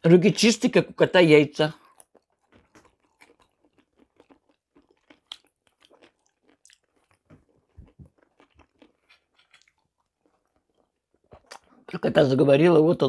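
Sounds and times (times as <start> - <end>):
chewing fried chicken: 1.7 - 11.9
mouth clicks and smacks: 1.7 - 11.9.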